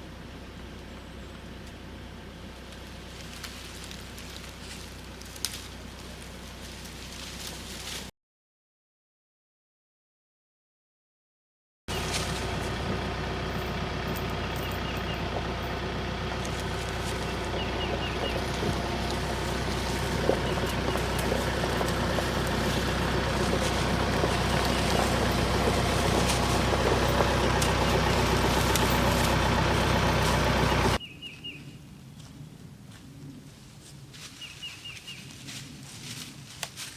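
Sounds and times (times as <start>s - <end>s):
tractor engine running: 0.0s - 8.1s, 11.9s - 31.0s.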